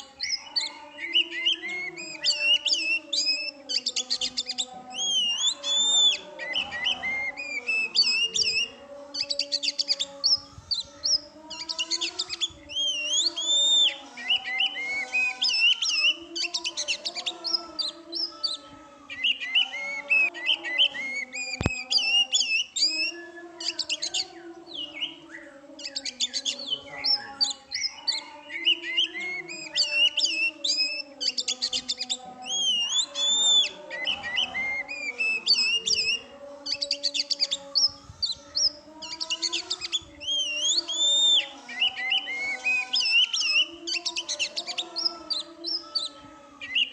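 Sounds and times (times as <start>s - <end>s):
songbird whistling and chirping: 0.0s - 46.9s.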